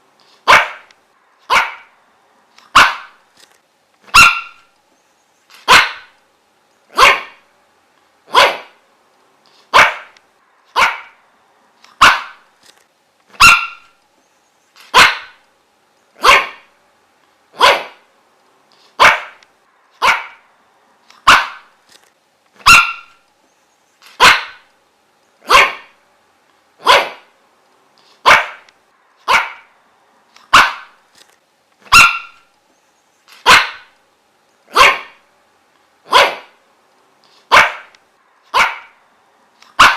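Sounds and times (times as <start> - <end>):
dog barking: 0.4 - 0.9, 1.5 - 2.0, 2.7 - 3.2, 4.1 - 4.7, 5.6 - 6.2, 6.9 - 7.4, 8.3 - 8.8, 9.7 - 11.2, 12.0 - 12.4, 13.4 - 14.0, 14.9 - 15.4, 16.2 - 16.7, 17.6 - 18.1, 19.0 - 19.4, 20.0 - 20.5, 21.2 - 21.7, 22.6 - 23.2, 24.2 - 24.7, 25.4 - 26.0, 26.8 - 27.3, 28.2 - 29.7, 30.5 - 31.0, 31.9 - 32.4, 33.4 - 33.9, 34.7 - 35.2, 36.1 - 36.6, 37.5 - 37.9, 38.5 - 39.0.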